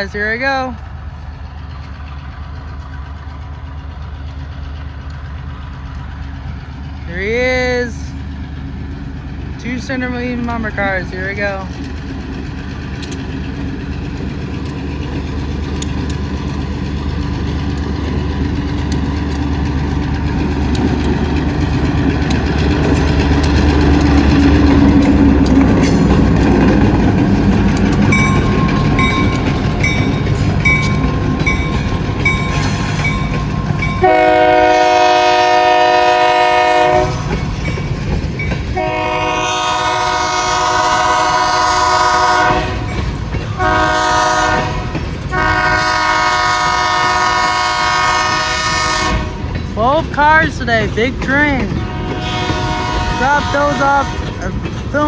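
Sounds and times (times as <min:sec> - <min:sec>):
diesel freight train rumbling: 0:00.0 - 0:55.0
locomotive bell dinging: 0:14.5 - 0:55.0
locomotive horn blasts: 0:34.0 - 0:37.4, 0:38.8 - 0:43.0, 0:43.6 - 0:49.5, 0:51.8 - 0:54.4.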